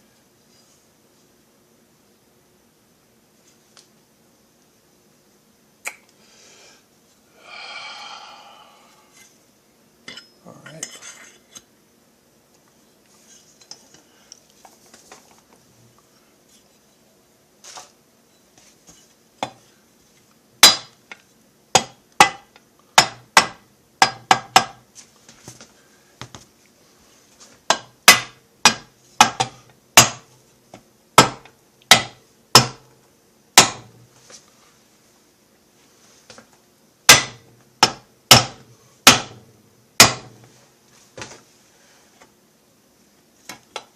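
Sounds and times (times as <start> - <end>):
faint handling sounds: 12.5 - 20.4.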